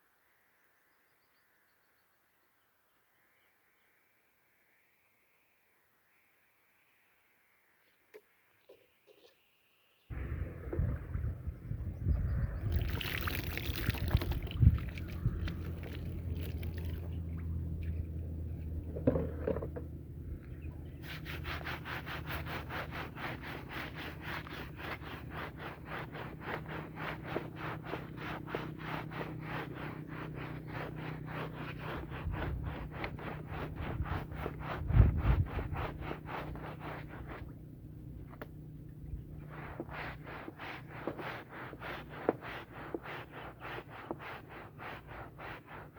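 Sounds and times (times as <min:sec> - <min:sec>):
low steady hum: 0:10.1 - 0:23.9, 0:31.8 - 0:41.2
scrubbing wet rug: 0:12.4 - 0:19.8, 0:20.6 - 0:45.9.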